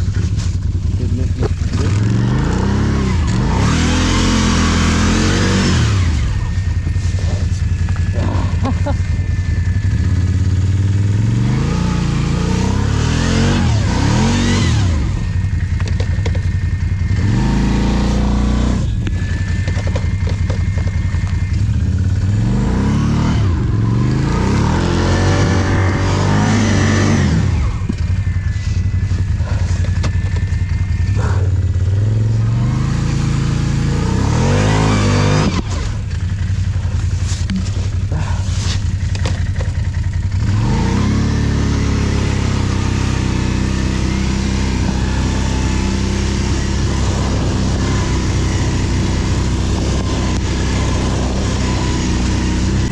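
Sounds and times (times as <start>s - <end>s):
atv engine revving: 0.0s - 52.9s.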